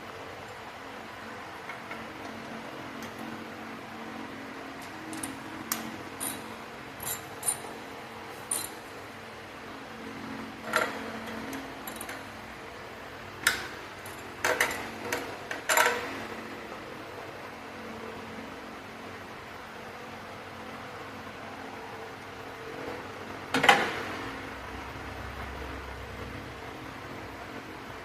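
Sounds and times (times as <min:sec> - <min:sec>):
steady low hum: 0:00.0 - 0:28.0
hand tools clinking on metal: 0:06.2 - 0:07.7, 0:08.5 - 0:08.8.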